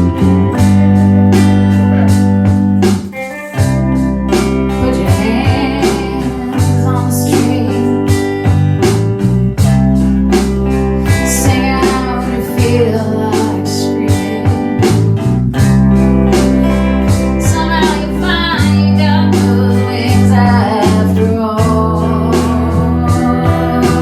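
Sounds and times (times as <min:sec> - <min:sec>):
drum beat: 0:00.0 - 0:12.9, 0:14.1 - 0:24.0
bass line: 0:00.0 - 0:24.0
electric guitar: 0:00.0 - 0:24.0
person singing: 0:04.7 - 0:08.4, 0:11.0 - 0:15.1, 0:16.5 - 0:24.0.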